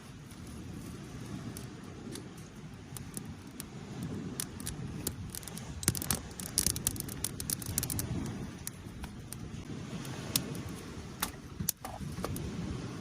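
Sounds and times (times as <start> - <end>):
rustling with sharp clicks: 1.5 - 9.4.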